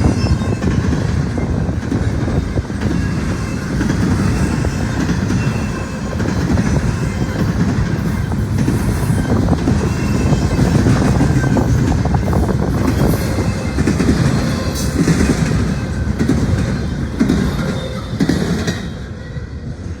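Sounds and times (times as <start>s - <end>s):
train wheels clicking over rail joints: 0.0s - 19.1s
freight train rumbling past: 0.0s - 20.0s.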